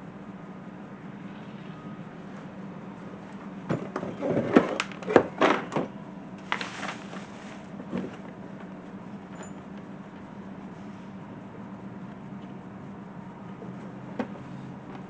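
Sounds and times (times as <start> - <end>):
steady low hum: 0.0 - 15.0
knocks and clatter of parts handled: 3.7 - 5.9.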